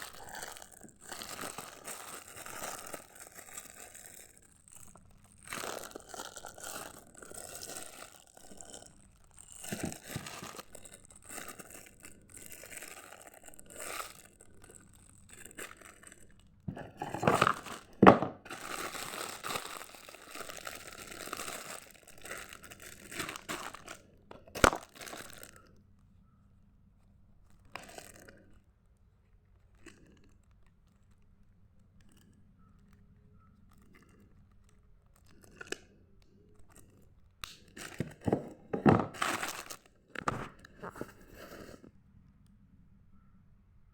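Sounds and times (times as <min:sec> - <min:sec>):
packaging crinkling and tearing: 0:00.0 - 0:25.7, 0:27.5 - 0:28.4, 0:37.4 - 0:41.8.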